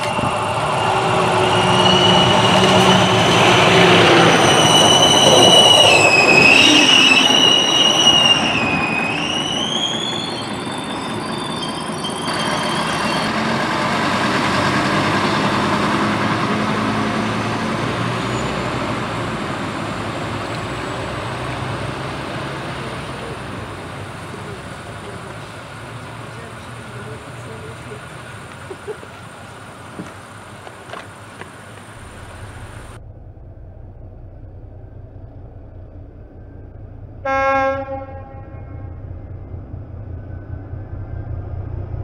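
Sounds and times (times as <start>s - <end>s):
train wheels squealing: 0.0s - 13.6s, 17.4s - 19.0s
railcar running and engine hum: 0.0s - 42.0s.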